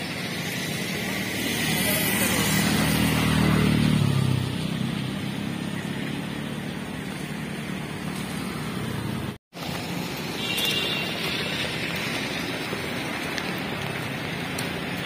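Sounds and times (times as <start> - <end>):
vehicle engine passing: 0.6 - 9.4.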